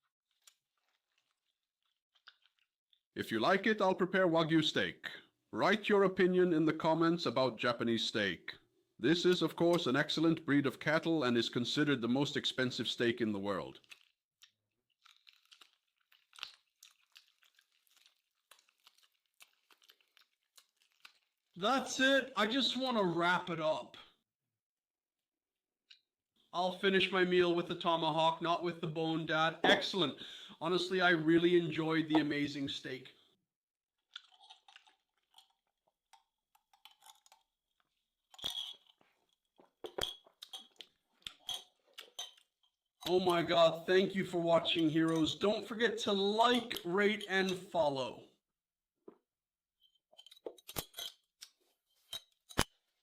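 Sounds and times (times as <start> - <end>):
chewing crunches: 0.3 - 2.7, 13.8 - 21.6, 34.0 - 38.0.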